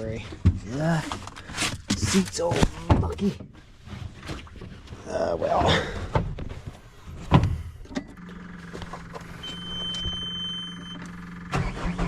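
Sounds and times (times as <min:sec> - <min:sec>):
skid steer engine humming: 0:08.1 - 0:12.0
high warning beep: 0:09.3 - 0:11.1.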